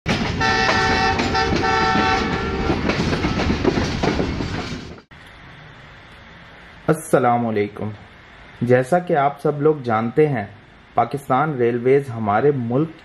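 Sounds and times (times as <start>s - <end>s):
train rumble and clickety-clack: 0.1s - 5.1s
train horn chord: 0.4s - 2.8s
faint hiss: 5.1s - 13.0s.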